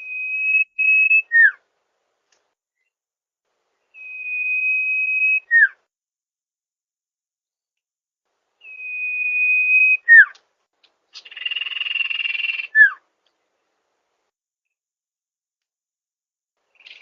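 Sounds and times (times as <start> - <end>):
songbird whistling and rattling: 3.9 - 5.8, 8.6 - 10.4, 11.1 - 13.0, 16.7 - 17.0.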